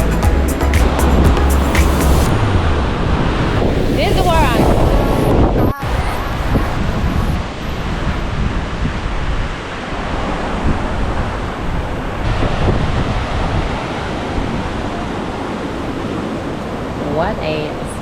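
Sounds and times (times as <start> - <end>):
ocean surf: 0.8 - 18.0
wind buffeting microphone: 2.3 - 15.4.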